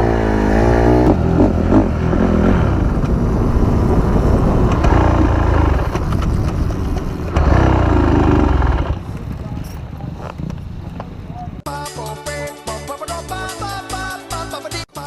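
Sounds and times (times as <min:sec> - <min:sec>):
dirt bike engine running: 0:00.0 - 0:11.2.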